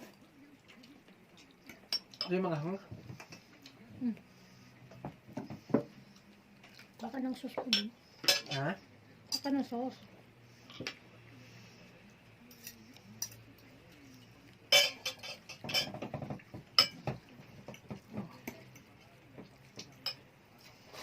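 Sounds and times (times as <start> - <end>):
cutlery clinking on plates: 1.4 - 3.7, 7.6 - 9.5, 12.5 - 13.7, 14.6 - 20.3.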